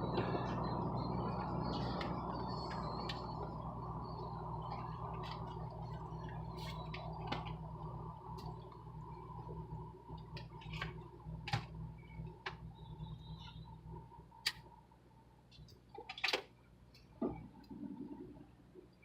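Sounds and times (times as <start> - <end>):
car cabin hum: 0.0 - 14.5.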